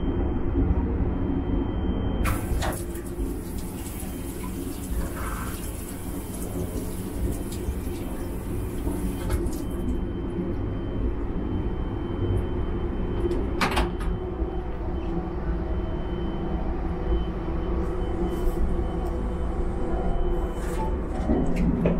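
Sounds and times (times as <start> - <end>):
train low rumble: 10.0 - 21.9.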